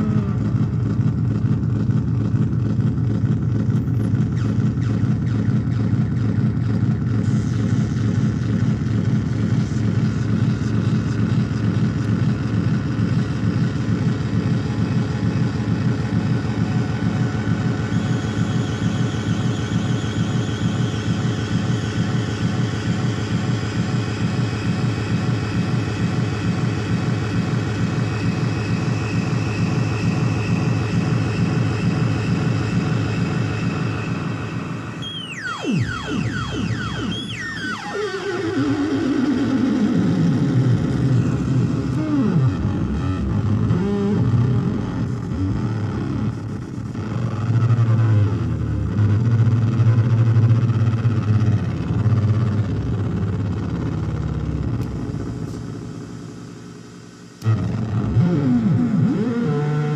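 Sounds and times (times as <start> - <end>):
synthesizer drone with flutter: 0.0 - 59.9
thin high synthesizer tones: 31.5 - 43.9.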